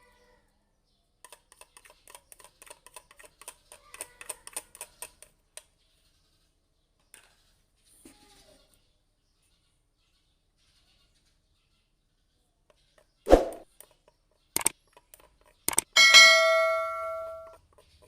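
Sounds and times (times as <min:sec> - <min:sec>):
rapid sharp clicks: 0:13.8 - 0:16.0.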